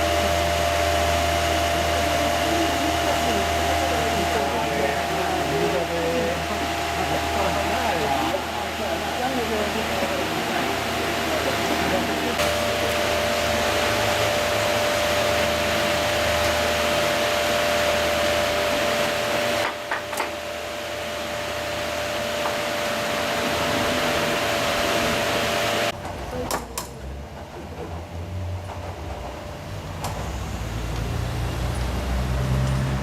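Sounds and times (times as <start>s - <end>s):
machine motor rushing and whining: 0.0s - 26.0s.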